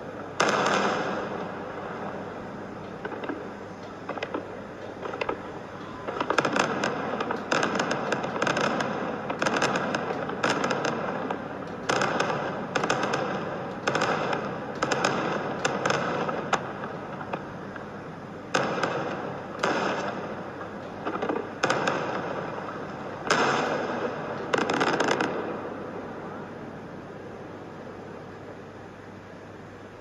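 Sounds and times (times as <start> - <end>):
crackling firework pops: 0.4 - 1.4, 3.0 - 3.5, 4.1 - 5.4, 6.1 - 17.8, 18.5 - 22.6, 23.2 - 25.5.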